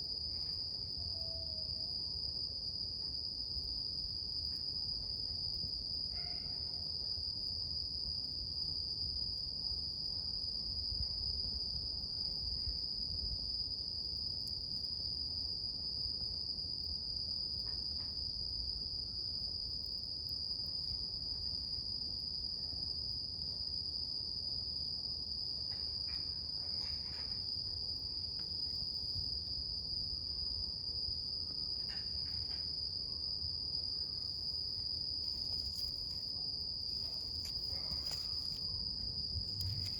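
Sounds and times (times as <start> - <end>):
insects trilling: 25.7 - 39.9.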